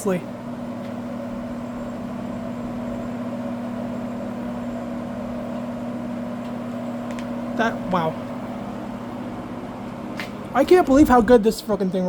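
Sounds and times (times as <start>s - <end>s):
box fan running: 0.0s - 12.0s.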